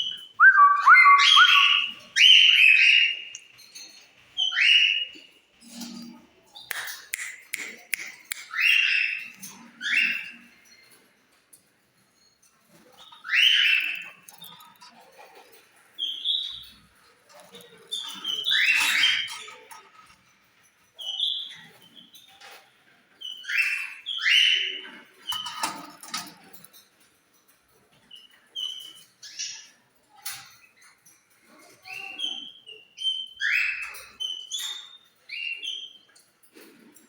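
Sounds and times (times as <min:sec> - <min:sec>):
lovebirds screeching: 0:00.4 - 0:03.3
high bird chirps: 0:00.4 - 0:03.4.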